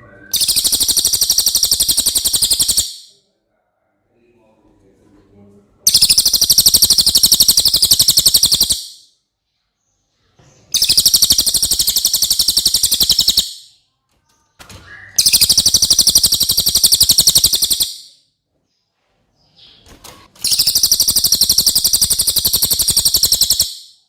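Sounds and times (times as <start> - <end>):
bird singing fast high trills: 0.3 - 3.1, 5.9 - 9.0, 10.8 - 13.7, 15.0 - 18.2, 20.4 - 24.0.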